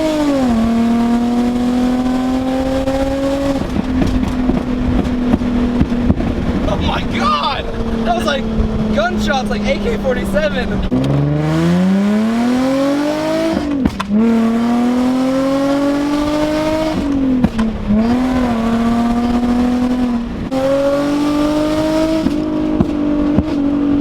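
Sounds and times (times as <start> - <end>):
car engine accelerating: 0.0 - 24.0
exhaust pops and cracks: 2.8 - 7.0, 13.5 - 14.2, 16.9 - 18.2, 22.2 - 23.7.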